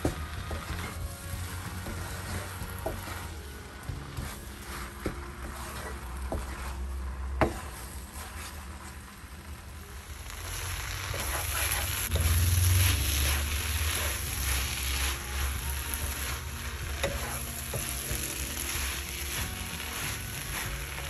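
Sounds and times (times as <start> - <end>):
wooden spatula scraping pan: 0.0 - 9.3, 10.4 - 21.0
okra sizzling in a pan: 0.0 - 21.0.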